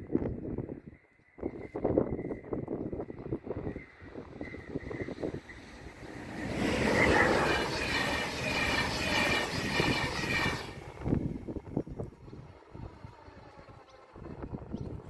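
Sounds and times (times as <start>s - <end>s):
train wheels rushing on rails: 3.2s - 12.0s.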